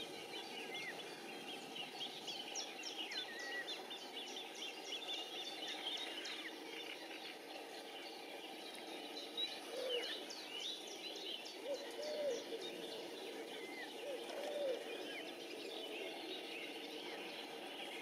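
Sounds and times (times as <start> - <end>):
birds chirping and whistling: 0.0 - 18.0
lower bird call: 9.4 - 18.0.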